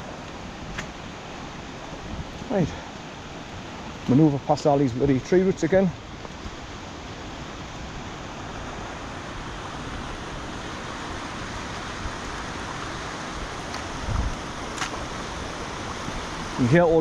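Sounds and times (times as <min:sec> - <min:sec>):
fast-flowing stream rushing: 0:00.0 - 0:17.0.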